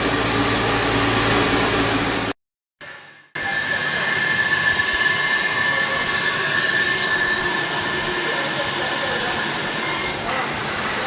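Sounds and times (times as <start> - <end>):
steady high whistle: 3.3 - 8.6.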